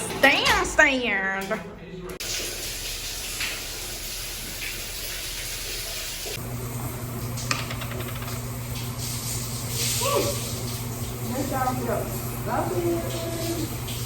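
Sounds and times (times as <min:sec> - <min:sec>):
water running: 0:00.0 - 0:14.0.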